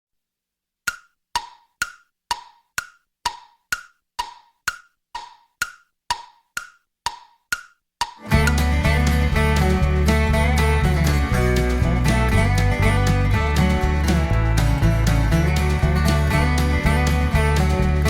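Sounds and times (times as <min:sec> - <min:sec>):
music: 0:08.2 - 0:18.0.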